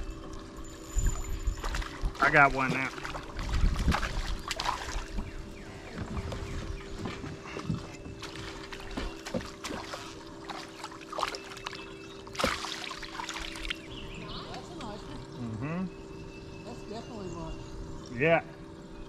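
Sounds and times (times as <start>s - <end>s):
steady low hum: 0.0s - 19.0s
water splashing: 1.1s - 13.9s.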